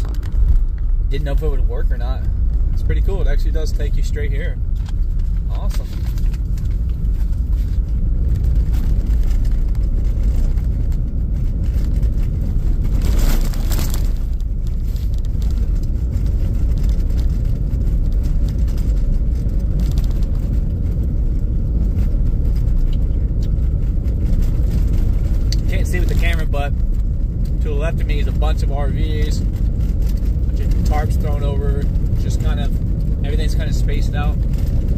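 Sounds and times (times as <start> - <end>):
car engine rumble: 0.0 - 34.9
tyre road noise: 0.0 - 34.9.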